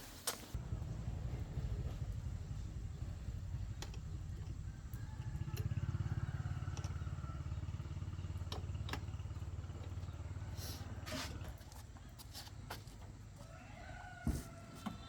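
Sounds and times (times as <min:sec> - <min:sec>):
engine idling: 0:00.6 - 0:13.4.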